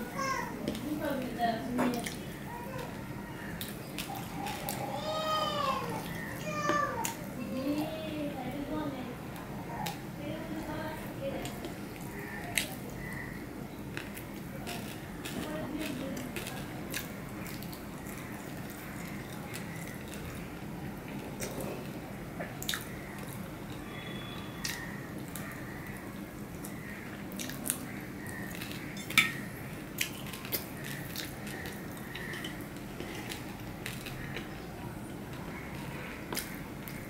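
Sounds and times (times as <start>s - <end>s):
man chewing wetly: 11.5s - 37.0s.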